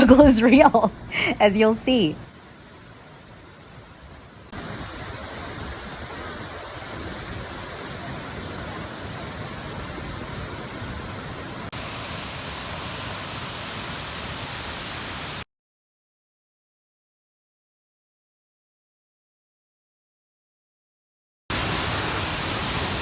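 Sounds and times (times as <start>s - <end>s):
rush of flowing water: 0.0s - 15.4s, 21.5s - 23.0s.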